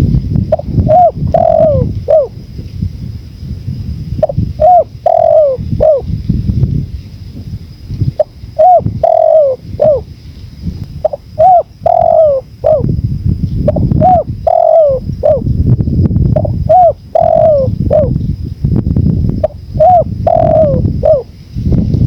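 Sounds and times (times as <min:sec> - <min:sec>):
wind rumble: 0:00.0 - 0:22.0
dove cooing: 0:00.5 - 0:02.4, 0:04.2 - 0:06.2, 0:08.1 - 0:10.1, 0:11.0 - 0:13.0, 0:13.6 - 0:15.5, 0:16.4 - 0:18.2, 0:19.4 - 0:21.3.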